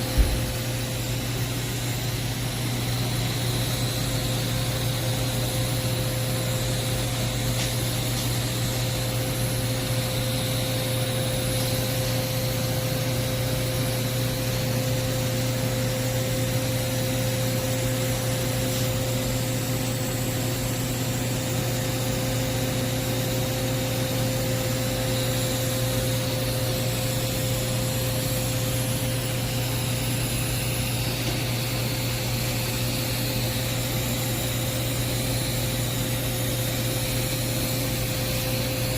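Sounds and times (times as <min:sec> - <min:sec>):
welding arc hum and hiss: 0:00.0 - 0:38.9.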